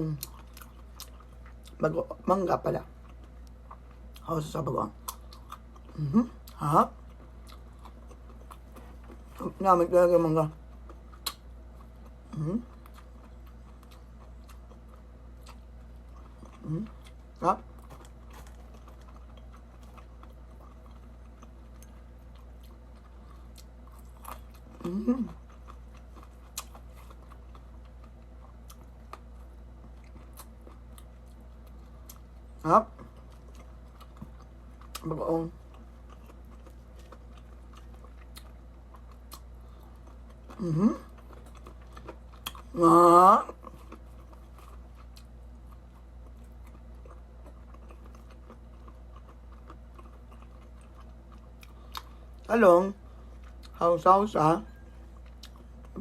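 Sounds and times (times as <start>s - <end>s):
low steady hum: 0.0s - 56.0s
wet chewing mouth sounds: 10.6s - 32.3s, 43.5s - 52.5s, 55.2s - 56.0s.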